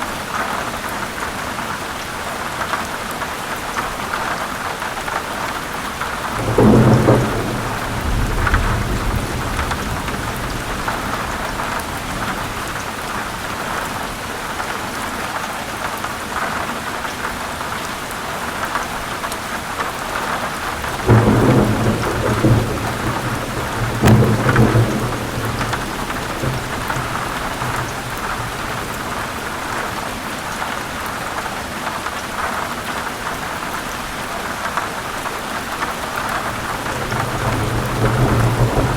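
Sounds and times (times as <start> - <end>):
heavy rain on leaves: 0.0 - 38.9
thunder rumbling: 6.0 - 13.8, 20.6 - 30.0, 36.4 - 38.9.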